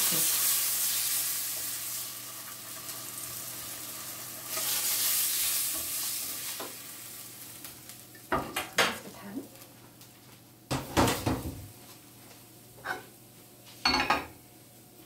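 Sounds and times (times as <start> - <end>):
fish sizzling in a frying pan: 0.0 - 8.5.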